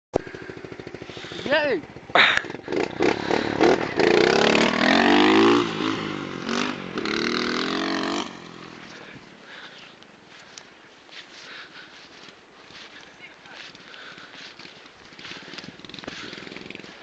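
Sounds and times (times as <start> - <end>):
small motorbike engine revving: 0.2 - 9.1, 15.1 - 17.0.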